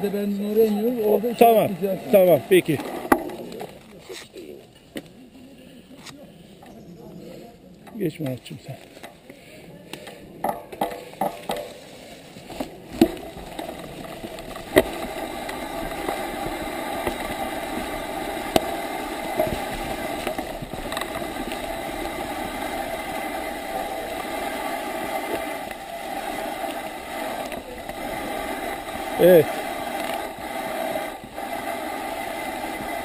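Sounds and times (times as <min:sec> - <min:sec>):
bicycle tyre noise: 0:00.0 - 0:33.0
bicycle knocks and rattles: 0:02.8 - 0:03.6, 0:10.4 - 0:11.8, 0:12.4 - 0:23.2.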